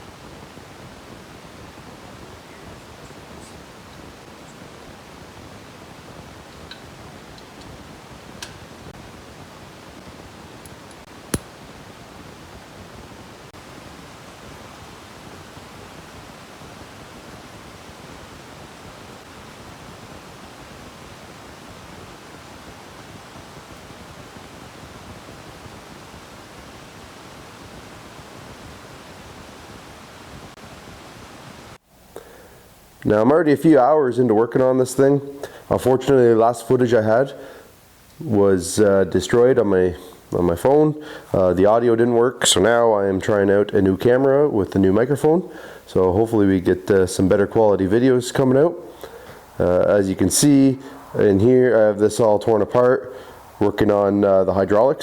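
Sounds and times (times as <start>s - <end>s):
steady hiss: 0.0s - 55.0s
sharp click: 11.3s - 11.5s.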